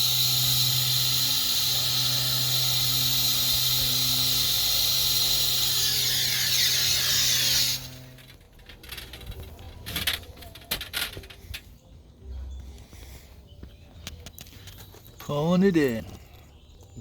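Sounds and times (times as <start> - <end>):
machine hissing over hum: 0.0 - 8.4
clicks and knocks of tools: 8.1 - 11.7.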